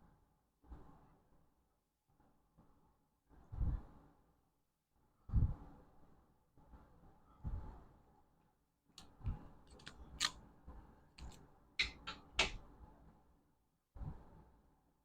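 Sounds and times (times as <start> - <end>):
sharp clicks and snips: 9.0 - 10.4, 11.2 - 12.6.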